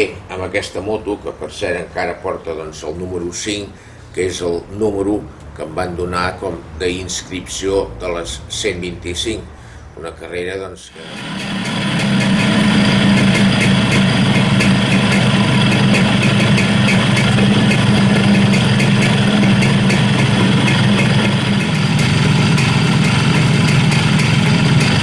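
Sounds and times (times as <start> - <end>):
motorcycle engine idling: 11.0 - 25.0.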